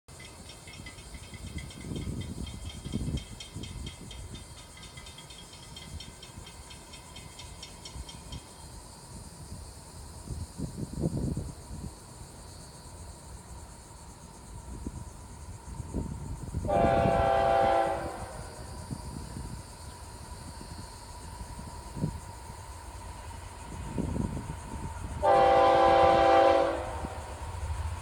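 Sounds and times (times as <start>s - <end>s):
locomotive air horn: 16.7s - 18.6s, 25.2s - 27.4s.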